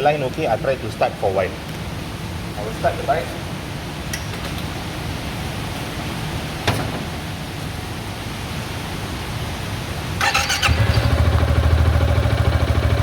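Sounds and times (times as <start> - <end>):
scooter engine starting and idling: 10.2 - 13.0.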